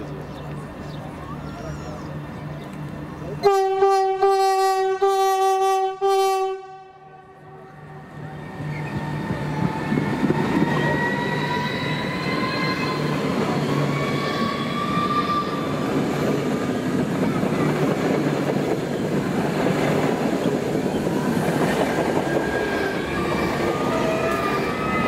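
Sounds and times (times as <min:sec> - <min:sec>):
train wheels rumbling: 0:07.3 - 0:25.0.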